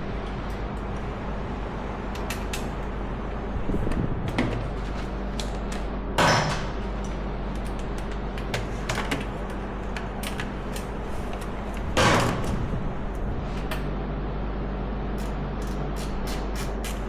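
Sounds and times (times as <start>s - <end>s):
steady hum: 0.0s - 17.0s
tools clicking and tapping: 15.2s - 17.0s.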